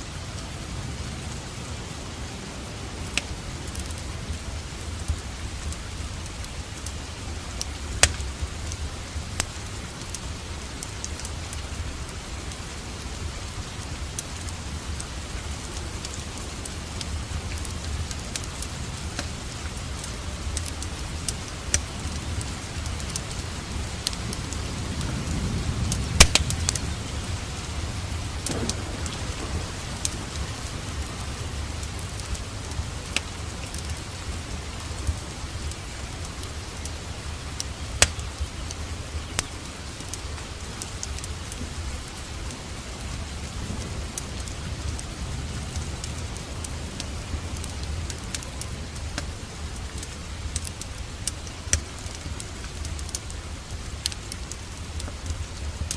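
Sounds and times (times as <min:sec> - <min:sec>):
fireplace fire crackling: 0:00.0 - 0:55.9
steady rain: 0:00.0 - 0:55.9
low rumble: 0:24.2 - 0:33.5.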